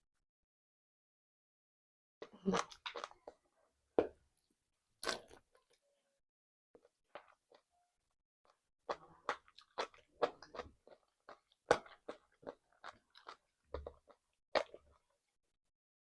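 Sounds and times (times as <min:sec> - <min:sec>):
chewing and crunching: 0:02.2 - 0:03.4, 0:08.5 - 0:15.2.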